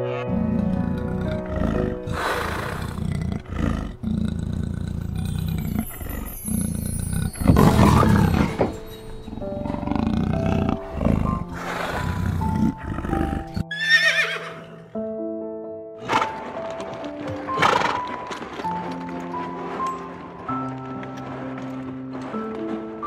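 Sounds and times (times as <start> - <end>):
horse whinnying: 0.0 - 14.9, 16.0 - 22.8
background music: 0.0 - 23.0
big cat growling and roaring: 0.2 - 13.7
horse snorting: 0.3 - 14.8, 16.0 - 23.0.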